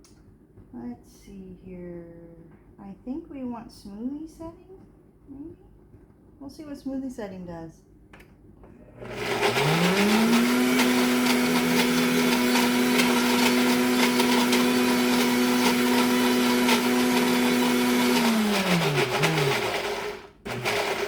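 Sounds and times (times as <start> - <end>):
blender motor churning: 8.8 - 21.0.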